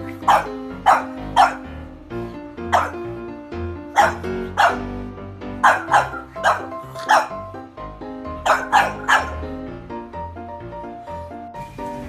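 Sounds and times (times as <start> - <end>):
puppy barking in high yaps: 0.0 - 1.6, 2.7 - 3.0, 3.9 - 4.9, 5.6 - 7.4, 8.4 - 9.4
background music: 0.0 - 12.0.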